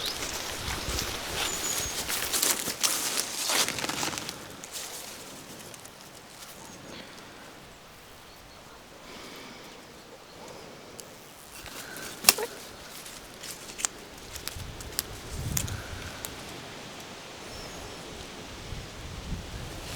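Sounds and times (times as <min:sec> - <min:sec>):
crunching footsteps: 0:00.0 - 0:07.4, 0:11.1 - 0:16.6
quiet outdoor ambience: 0:00.0 - 0:19.9.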